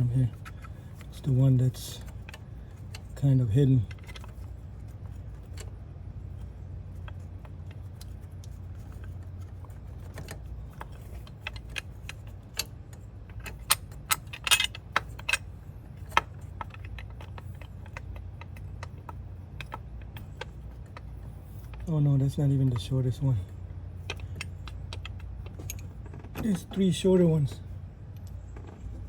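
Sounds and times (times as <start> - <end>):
metal bolts clinking: 10.0 - 28.9.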